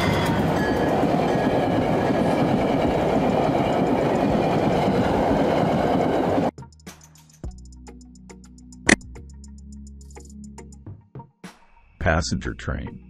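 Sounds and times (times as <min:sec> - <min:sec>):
train wheels rumbling on rail: 0:00.0 - 0:06.5.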